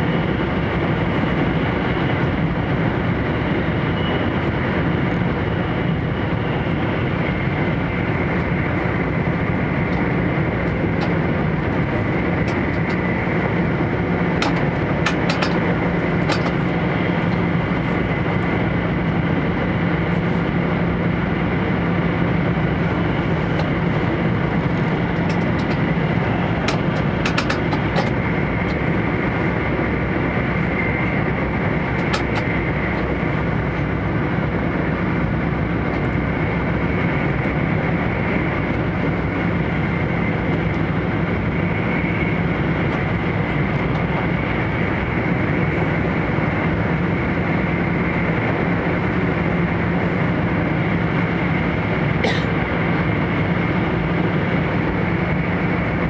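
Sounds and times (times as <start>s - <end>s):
train cabin rumble and rush: 0.0s - 56.0s.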